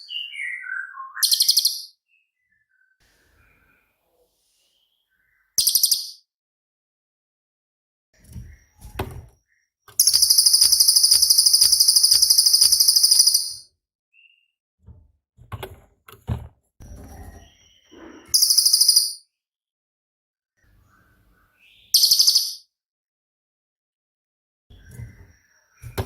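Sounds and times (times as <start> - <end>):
high fast bird trill: 10.0 - 13.6
soft bird chips: 10.0 - 13.6.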